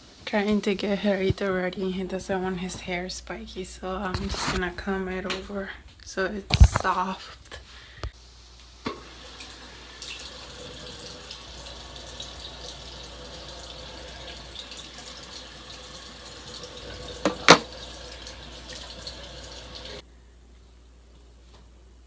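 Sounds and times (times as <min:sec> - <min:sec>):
water running from a tap: 0:09.0 - 0:20.0.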